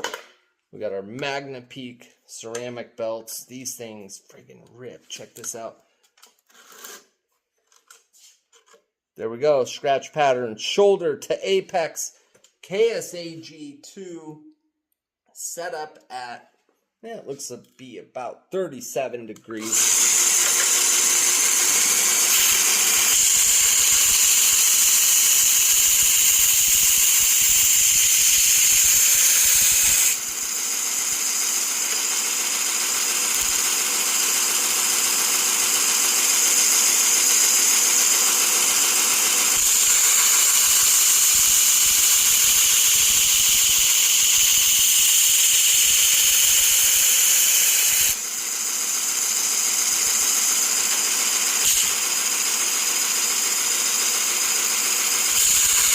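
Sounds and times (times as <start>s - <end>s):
belt grinder grinding metal: 19.6s - 55.9s.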